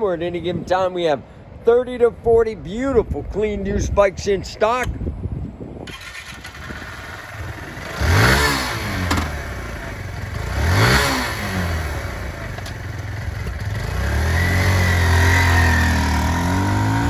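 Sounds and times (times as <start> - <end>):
motorbike engine revving: 5.8 - 17.0.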